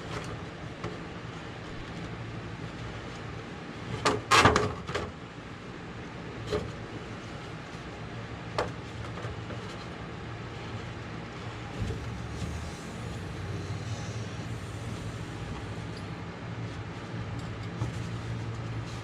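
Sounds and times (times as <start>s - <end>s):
steady low hum: 4.9s - 19.0s.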